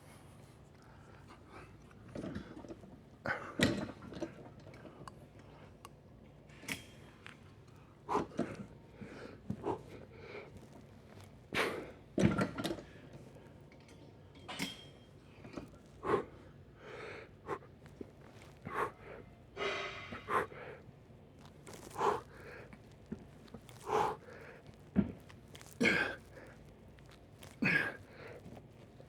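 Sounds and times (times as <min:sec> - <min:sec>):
man breathing hard: 0:18.4 - 0:20.9, 0:21.6 - 0:22.8, 0:23.6 - 0:24.8.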